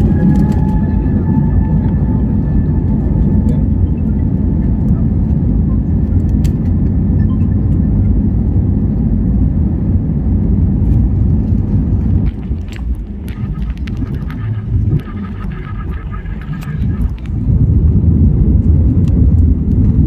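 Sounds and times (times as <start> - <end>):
aircraft engine rumble in cabin: 0.0 - 20.0
faint high hum: 12.4 - 18.0.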